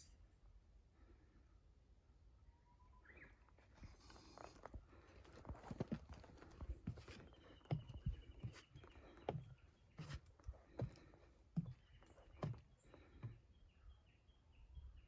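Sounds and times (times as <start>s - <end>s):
footsteps: 5.3s - 13.4s.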